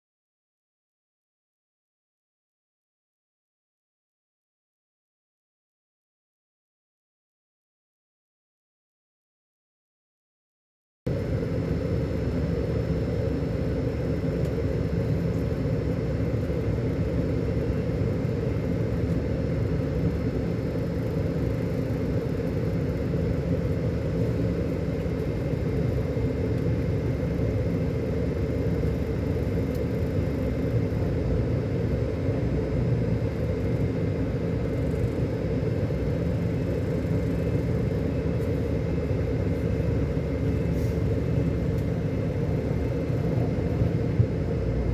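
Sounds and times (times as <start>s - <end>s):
diesel engine running: 11.1s - 44.9s.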